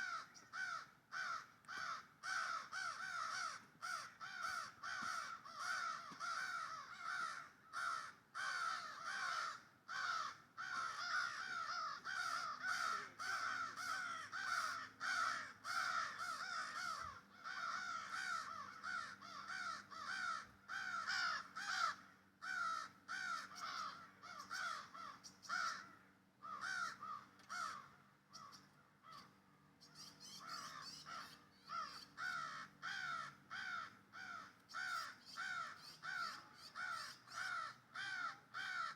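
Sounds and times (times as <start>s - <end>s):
baby bird calling: 29.8s - 33.1s.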